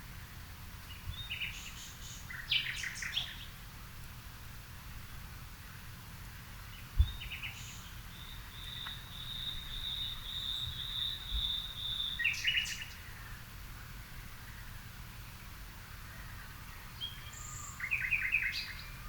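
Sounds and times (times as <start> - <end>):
low outdoor rumble: 0.0 - 19.0
birds chirping: 6.4 - 19.0.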